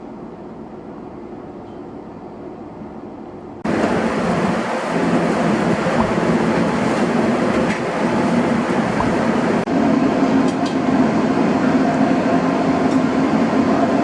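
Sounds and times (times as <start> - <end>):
train running: 3.6 - 14.0.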